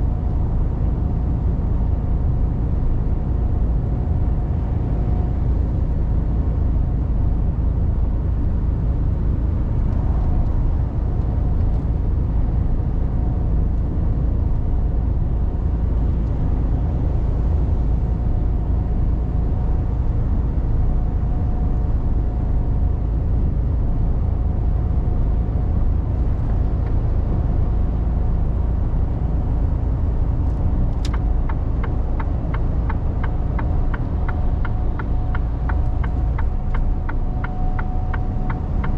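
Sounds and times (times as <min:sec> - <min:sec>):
road rumble: 0:00.0 - 0:38.9
truck diesel engine: 0:23.1 - 0:38.9.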